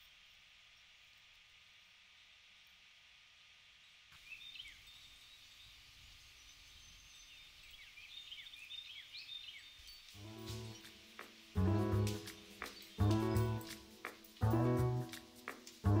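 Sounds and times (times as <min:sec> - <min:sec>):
small birds chirping: 0:03.8 - 0:16.0
soft music: 0:10.2 - 0:16.0.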